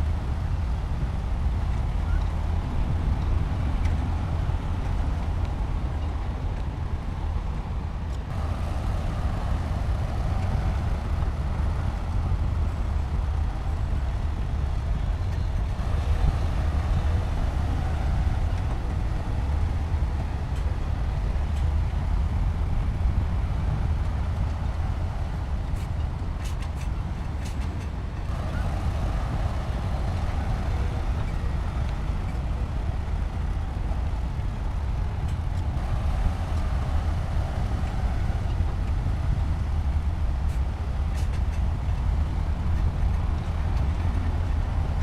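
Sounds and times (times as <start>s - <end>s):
diesel machinery rumbling: 0.0s - 45.0s.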